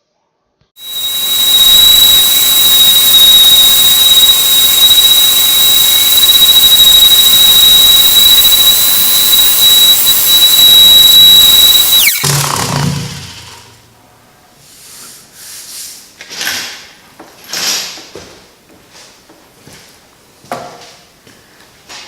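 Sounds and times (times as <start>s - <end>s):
orbital sander whining: 0.8s - 12.4s.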